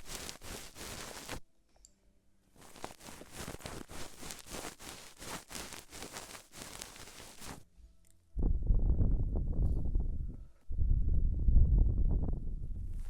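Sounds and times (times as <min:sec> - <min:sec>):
small clicks and crackling rustle: 0:00.0 - 0:01.4, 0:02.6 - 0:08.2.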